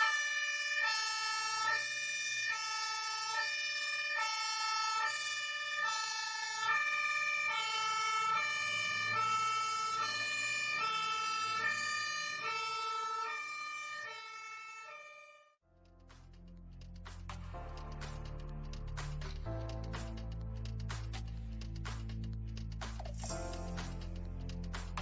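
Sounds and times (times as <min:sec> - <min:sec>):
two-tone siren: 0:00.0 - 0:15.6.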